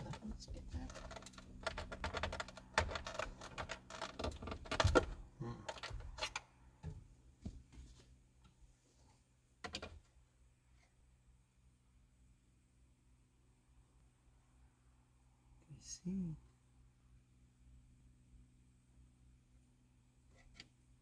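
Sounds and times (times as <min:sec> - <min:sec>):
small hard parts clicking and rattling: 0:00.0 - 0:07.0.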